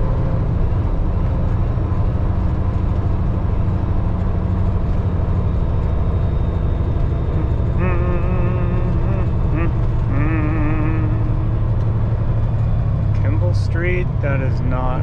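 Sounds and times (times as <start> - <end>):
truck diesel engine droning: 0.0 - 15.0
wavering high-pitched sound: 7.4 - 11.8.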